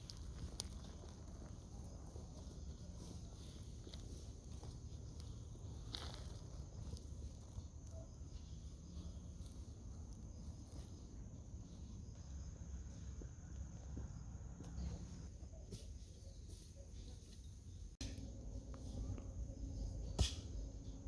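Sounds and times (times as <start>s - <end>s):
low rumble: 18.0s - 21.0s.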